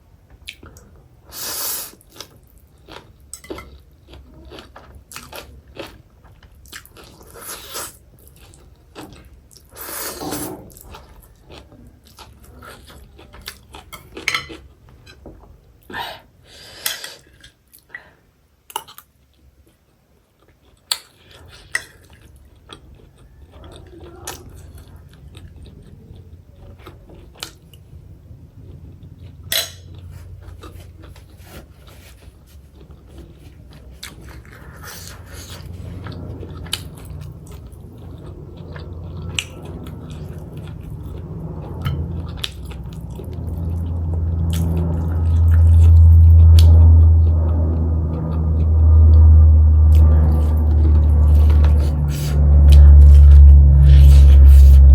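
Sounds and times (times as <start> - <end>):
chewing and crunching: 1.9 - 15.5, 16.9 - 49.2
cutlery clinking on dishes: 3.3 - 3.8, 13.9 - 15.2.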